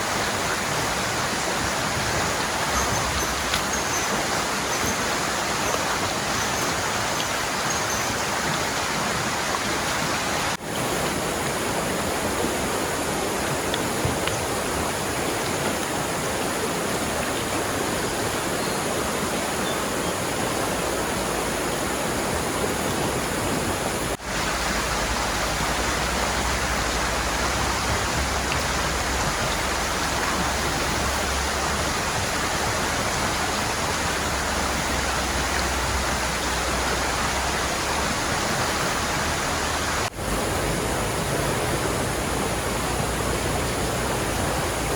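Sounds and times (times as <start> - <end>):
fast-flowing river rushing: 0.0 - 44.9.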